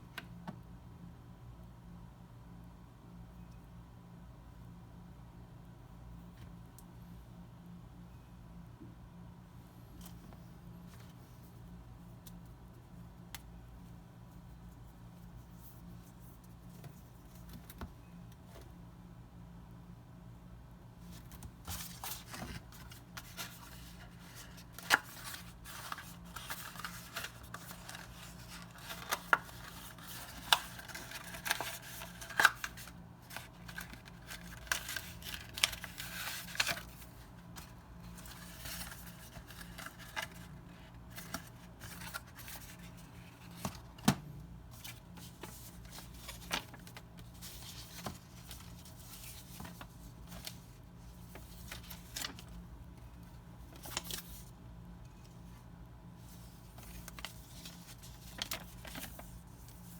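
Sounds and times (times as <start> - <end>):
packaging rustling and scraping: 21.1 - 44.0, 44.8 - 52.5.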